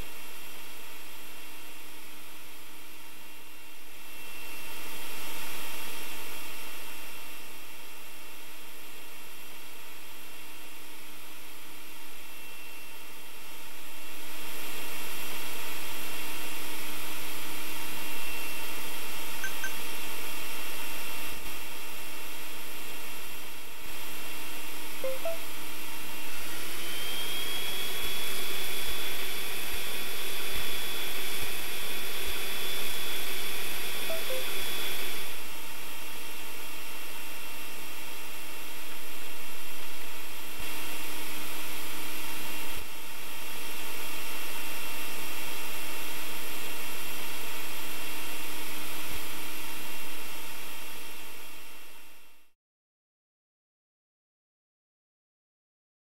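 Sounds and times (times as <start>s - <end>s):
robot vacuum motor whine: 26.1s - 35.4s.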